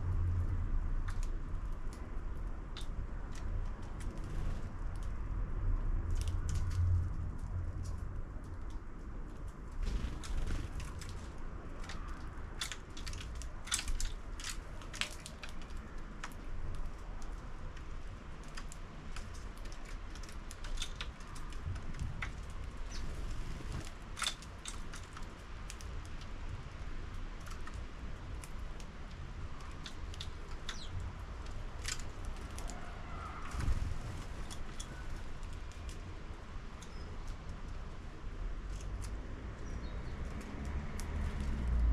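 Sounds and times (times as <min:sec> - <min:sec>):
low background rumble: 0:00.0 - 0:14.9
birds pecking seed in plastic feeder: 0:08.6 - 0:41.7.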